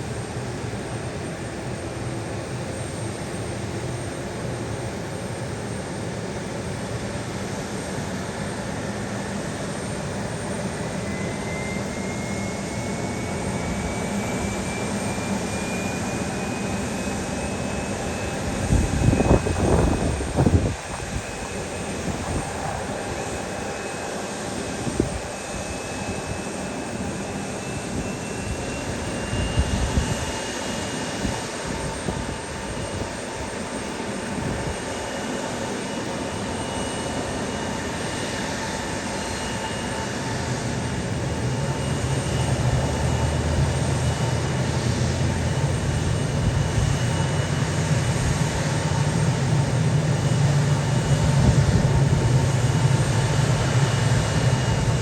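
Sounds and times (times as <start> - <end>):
aircraft engines whining: 0.0 - 55.0.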